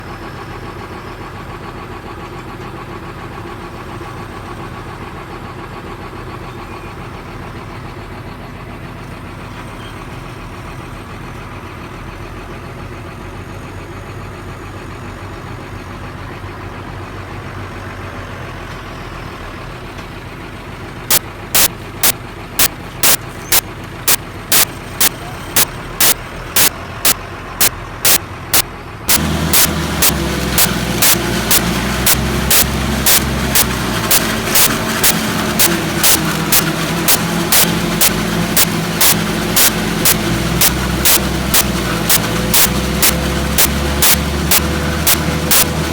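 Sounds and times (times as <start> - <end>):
farm vehicle engine running: 0.0 - 45.9
repeating sharp click: 22.6 - 23.2, 24.5 - 45.9.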